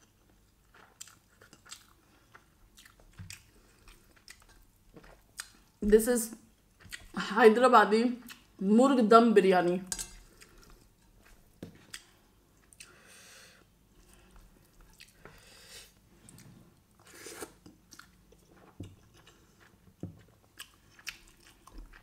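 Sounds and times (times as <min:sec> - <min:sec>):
wet chewing mouth sounds: 0:00.0 - 0:05.8, 0:06.6 - 0:07.2, 0:10.2 - 0:13.0, 0:13.9 - 0:22.0.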